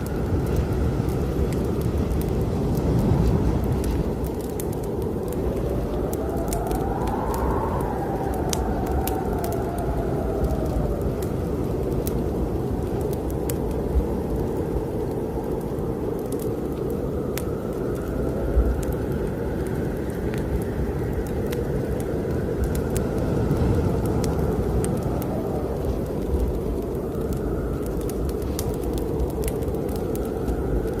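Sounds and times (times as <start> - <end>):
faint wind whistle: 0.0 - 31.0
wind blowing hard: 0.0 - 31.0
wood fire crackling: 0.0 - 31.0.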